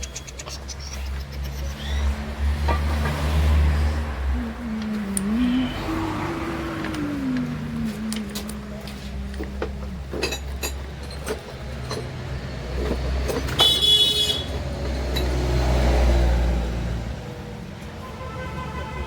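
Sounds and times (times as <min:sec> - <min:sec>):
road traffic rumbling: 0:00.0 - 0:19.0
vehicle horn: 0:05.4 - 0:06.3, 0:13.6 - 0:14.5, 0:18.0 - 0:19.0
metallic clinks of tools: 0:08.0 - 0:12.1.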